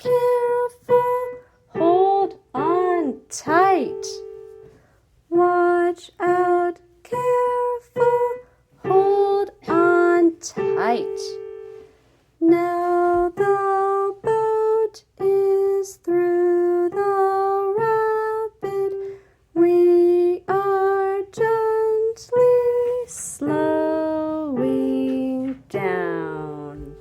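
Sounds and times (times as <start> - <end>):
woman singing: 0.0 - 4.4, 5.3 - 11.5, 12.4 - 27.0
piano: 0.0 - 27.0.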